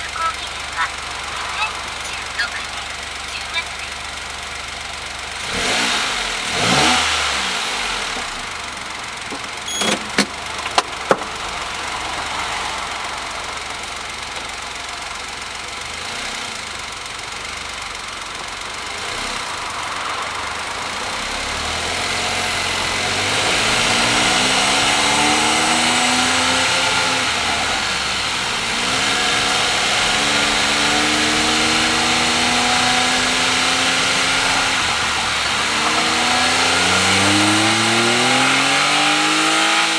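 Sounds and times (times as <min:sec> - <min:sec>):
car engine revving: 0:00.0 - 0:39.9
tyre hiss on wet road: 0:11.4 - 0:15.0.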